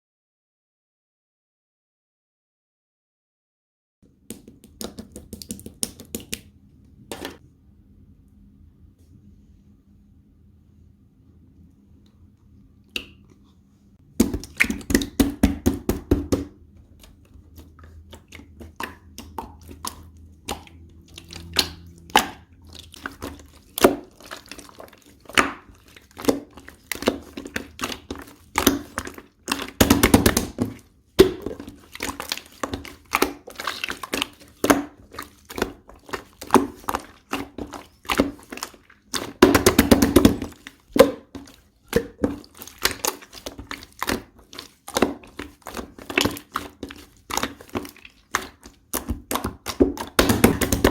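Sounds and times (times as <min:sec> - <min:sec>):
slime clicking and popping: 0:04.3 - 0:06.5.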